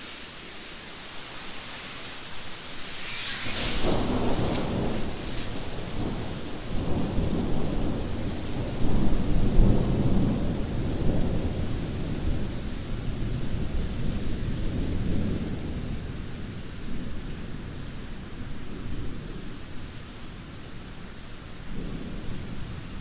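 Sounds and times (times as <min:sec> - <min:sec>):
steady rain: 0:00.0 - 0:23.0
low rolling thunder rumble: 0:02.9 - 0:23.0.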